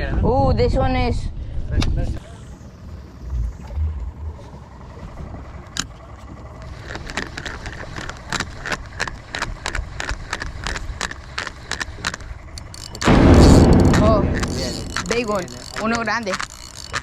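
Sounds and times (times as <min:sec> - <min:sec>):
wind: 0:00.0 - 0:17.0
boat rumble: 0:02.2 - 0:09.0, 0:11.9 - 0:17.0
fishing reel clicking: 0:12.6 - 0:13.6, 0:15.0 - 0:17.0.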